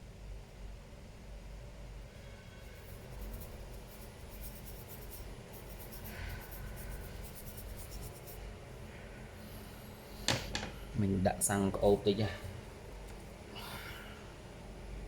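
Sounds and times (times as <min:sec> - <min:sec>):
scratching on hard surface: 0:02.5 - 0:08.4.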